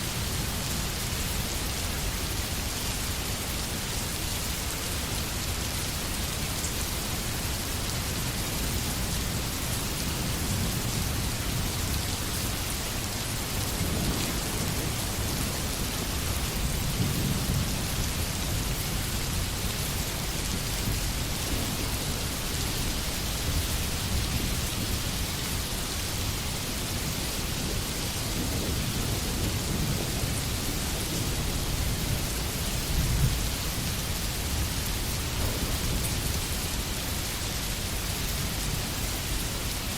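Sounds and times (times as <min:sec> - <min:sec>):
rain on leaves and ground: 0:00.0 - 0:39.9
distant thunder rumbling: 0:35.3 - 0:36.6.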